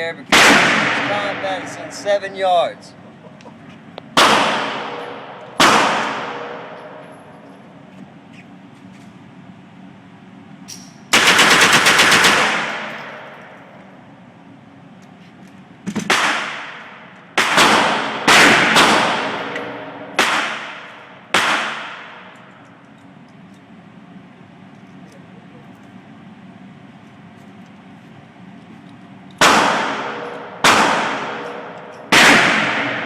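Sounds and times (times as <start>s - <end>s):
single gunshots with echo: 0.3s - 1.7s, 4.2s - 6.8s, 29.4s - 33.0s
rifle rapid burst of shots: 11.1s - 12.9s.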